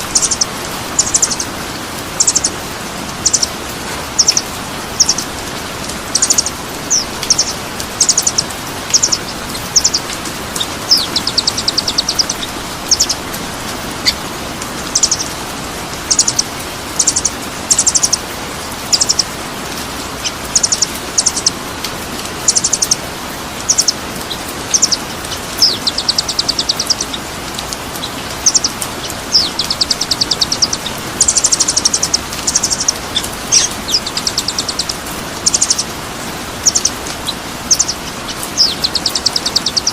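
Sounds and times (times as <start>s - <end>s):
songbird chirps and trills: 0.0s - 39.9s.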